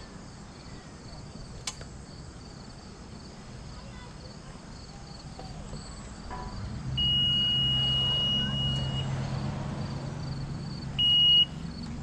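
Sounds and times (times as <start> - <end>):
warning beeper: 6.3 - 9.2.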